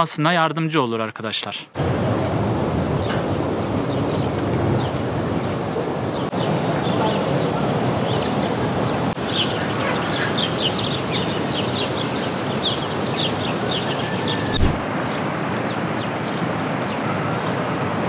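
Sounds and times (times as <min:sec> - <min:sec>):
steady rushing noise: 0:01.8 - 0:15.7
small birds chirping: 0:03.0 - 0:16.4.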